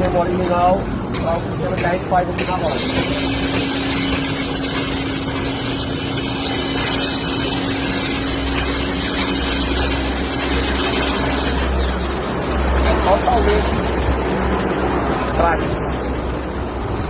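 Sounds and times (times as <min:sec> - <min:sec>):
pressure washer motor hum: 0:02.6 - 0:12.8
water spray hissing: 0:02.8 - 0:12.0.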